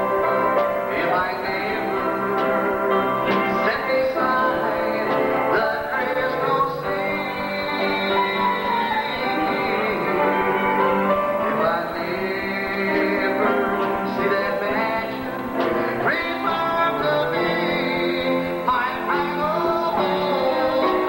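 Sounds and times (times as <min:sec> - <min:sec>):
gospel group singing: 0:00.0 - 0:21.0
instrumental accompaniment: 0:00.0 - 0:21.0.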